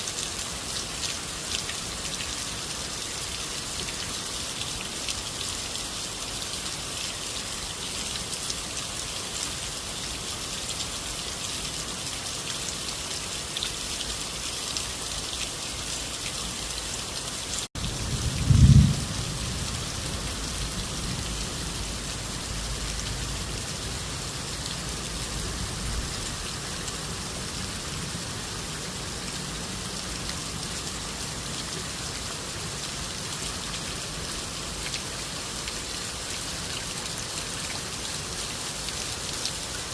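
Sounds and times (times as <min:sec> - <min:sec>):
steady rain falling: 0:00.0 - 0:39.9
thunder rumble: 0:17.8 - 0:22.3.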